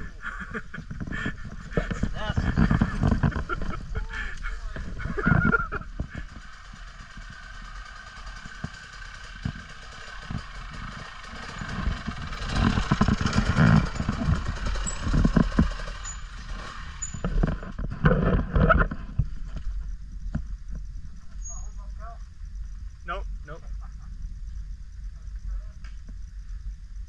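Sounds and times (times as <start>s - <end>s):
knocks and bumps: 0.0s - 7.5s, 8.2s - 16.2s, 17.1s - 21.4s
off-road motorbike whine: 0.0s - 26.8s.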